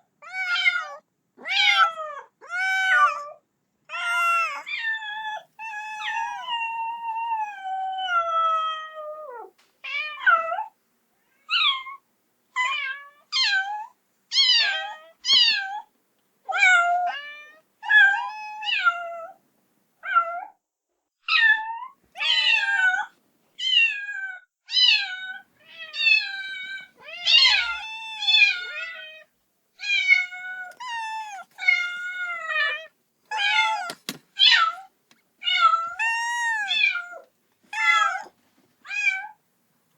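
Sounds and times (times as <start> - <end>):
kitten meowing: 3.9 - 10.6, 24.7 - 38.3.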